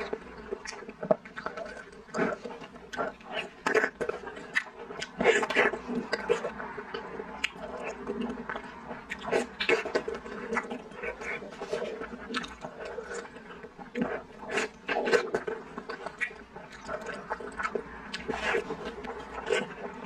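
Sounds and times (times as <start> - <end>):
chewing and wet mouth noises: 0.0 - 20.0.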